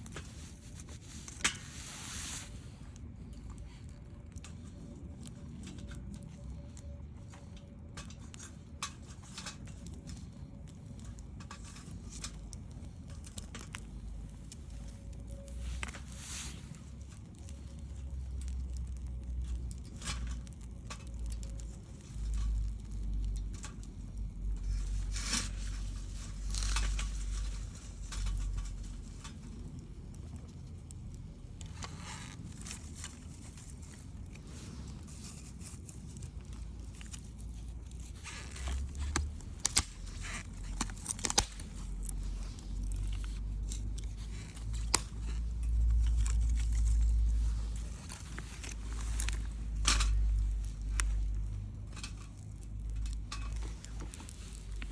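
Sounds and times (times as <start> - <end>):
wood fire crackling and popping: 0.0 - 54.9.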